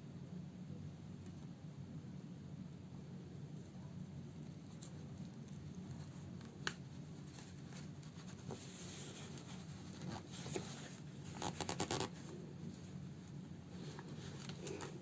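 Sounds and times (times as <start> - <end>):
needle and thread rustling through fabric: 4.4 - 15.0.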